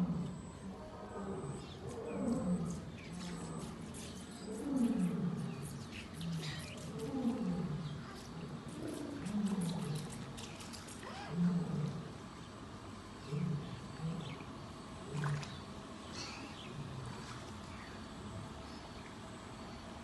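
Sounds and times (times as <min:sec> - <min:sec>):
lion roaring: 0:00.0 - 0:12.2, 0:13.1 - 0:15.7.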